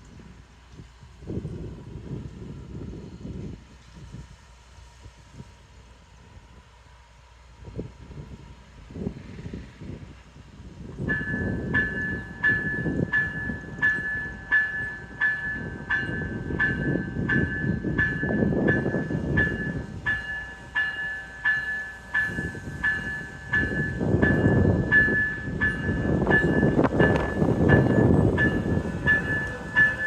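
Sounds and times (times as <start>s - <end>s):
train low rumble: 0.0s - 30.0s
railroad warning bell ringing: 11.0s - 30.0s.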